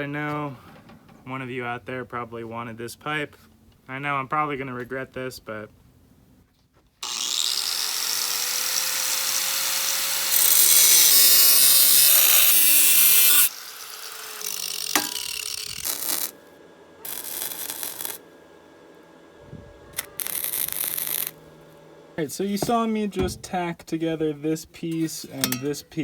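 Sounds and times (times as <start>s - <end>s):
power tool cutting metal pipe: 7.0s - 16.4s, 17.0s - 18.3s, 20.0s - 21.6s.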